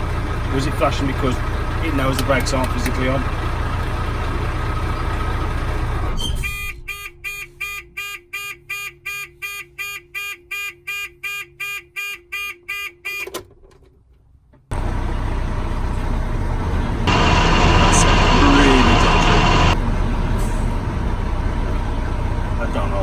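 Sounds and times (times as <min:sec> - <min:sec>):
truck engine running: 0:00.0 - 0:06.2, 0:14.7 - 0:23.0
two-tone warning beeper: 0:17.1 - 0:19.8.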